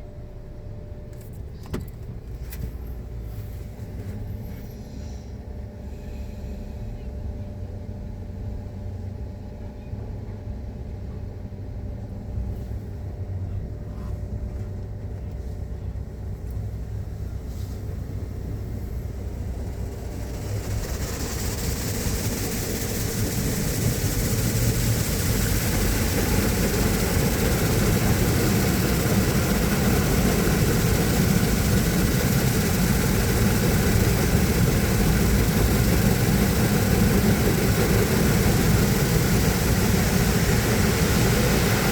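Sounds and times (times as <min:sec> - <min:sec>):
car wash machinery humming: 0:14.5 - 0:41.9
loud rushing hiss: 0:18.5 - 0:41.9.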